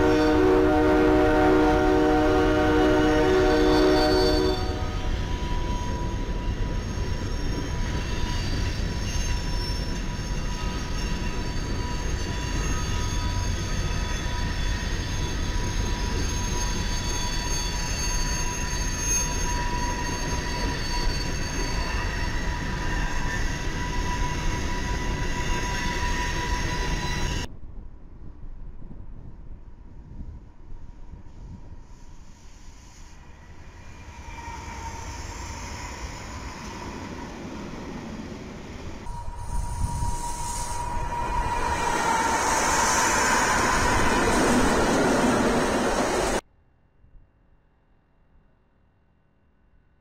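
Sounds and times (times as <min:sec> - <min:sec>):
train horn: 0:00.0 - 0:06.5, 0:39.0 - 0:44.6
wheels squealing on rails: 0:00.0 - 0:27.5, 0:31.2 - 0:46.4
distant train: 0:00.0 - 0:46.4
freight train rumbling: 0:00.0 - 0:46.4.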